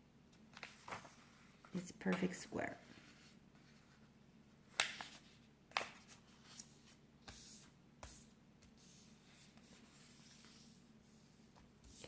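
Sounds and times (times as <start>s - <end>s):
paper rustling: 0.5s - 1.8s.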